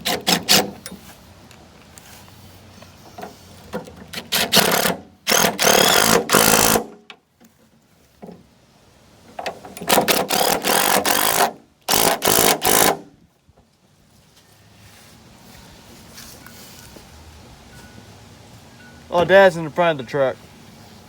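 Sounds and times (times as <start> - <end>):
power tool rattling: 0.0 - 1.0, 3.7 - 7.0, 9.4 - 13.1.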